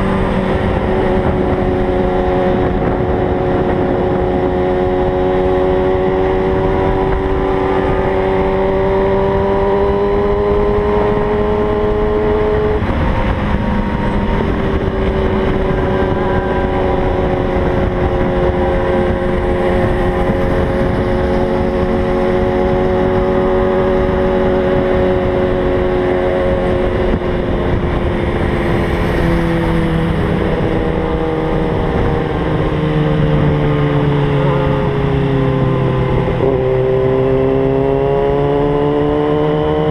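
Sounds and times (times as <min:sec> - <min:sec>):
motorcycle engine at speed: 0:00.0 - 0:39.9
wind rush on microphone: 0:00.0 - 0:39.9.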